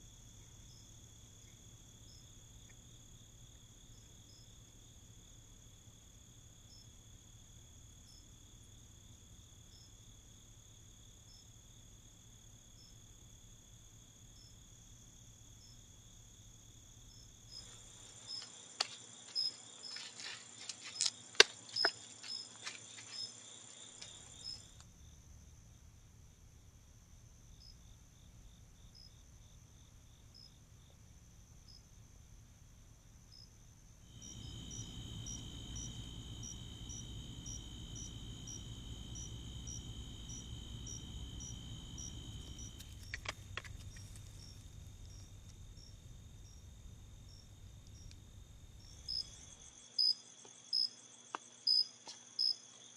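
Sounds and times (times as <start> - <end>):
crickets and insects trilling: 16.7 - 24.8, 34.1 - 52.6
steady low rumble: 34.1 - 49.7.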